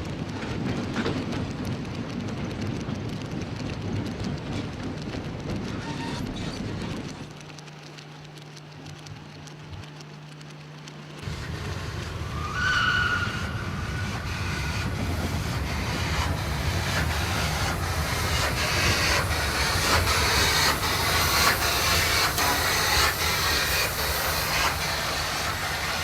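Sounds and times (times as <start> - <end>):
train running on rails: 0.0 - 26.0
rail-joint clicks: 2.6 - 26.0
high squeal: 11.6 - 17.8.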